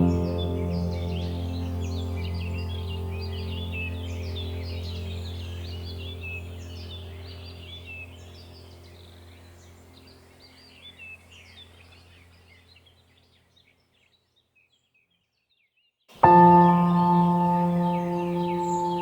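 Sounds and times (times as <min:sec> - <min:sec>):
small birds chirping and twittering: 0:00.0 - 0:19.0.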